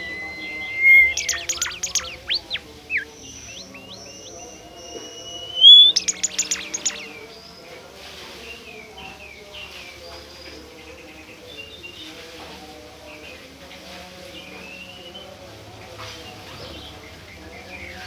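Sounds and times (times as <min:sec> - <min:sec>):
bird whistling song: 0:00.0 - 0:07.2.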